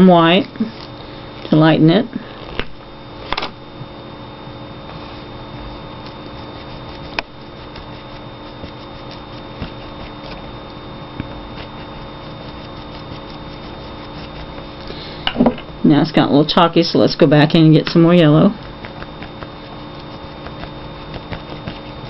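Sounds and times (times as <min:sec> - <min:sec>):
steady background hum: 0:00.0 - 0:22.0
paintbrush tapping and scraping paper: 0:18.7 - 0:21.9.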